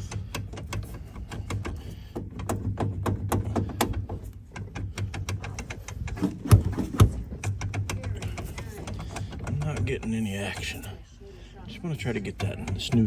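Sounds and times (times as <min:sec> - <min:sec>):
shift lever clicking and clunking: 0:00.0 - 0:11.0, 0:12.2 - 0:13.0.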